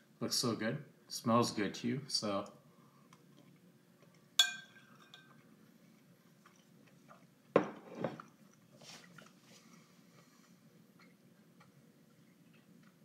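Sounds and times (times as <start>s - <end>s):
cutlery clinking on plate: 4.4s - 5.3s.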